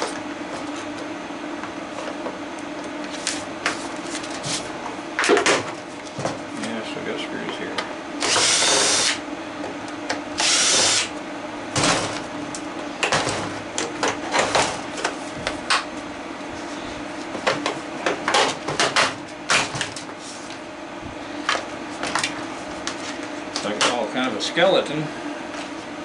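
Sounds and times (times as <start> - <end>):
power drill driving screws: 8.2 - 9.2, 10.4 - 11.1.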